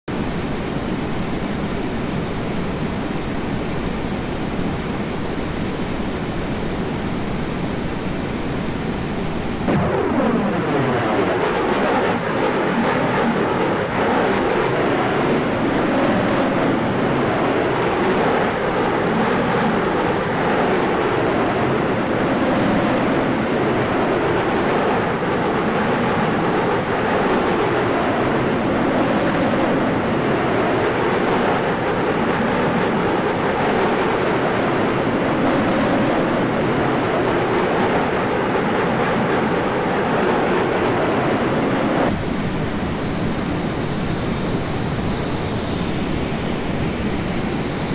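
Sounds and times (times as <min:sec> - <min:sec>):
aircraft engine noise: 0:00.1 - 0:47.9
airflow rush: 0:40.9 - 0:47.9.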